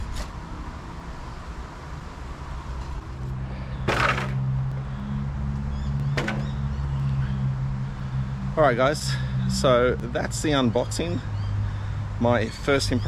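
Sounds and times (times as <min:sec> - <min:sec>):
sharp knocks or squeaks: 0:06.1 - 0:06.7.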